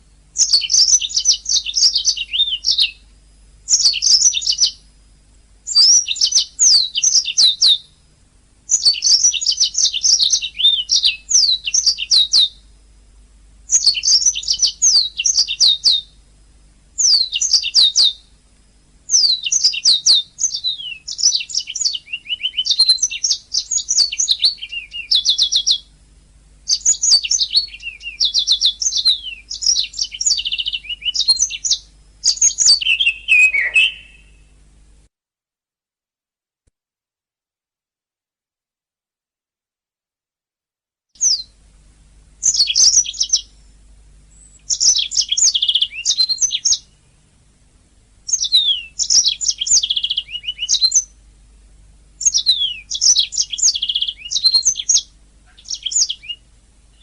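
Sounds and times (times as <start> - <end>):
canary singing chirps and trills: 0.4 - 4.9, 5.6 - 8.0, 8.7 - 12.8, 13.7 - 16.3, 17.0 - 18.5, 19.1 - 26.0, 26.6 - 34.6, 41.2 - 41.6, 42.3 - 43.7, 44.3 - 47.1, 48.2 - 51.3, 52.2 - 57.0.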